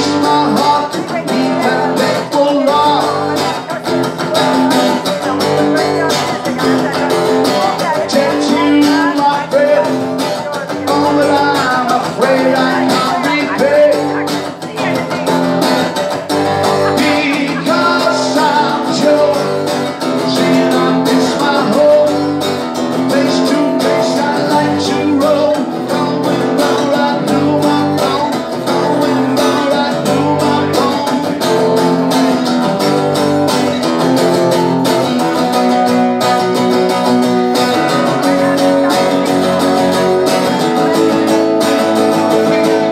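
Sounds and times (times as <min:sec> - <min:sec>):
person singing: 0:00.0 - 0:33.7
strummed guitar: 0:00.0 - 0:42.9.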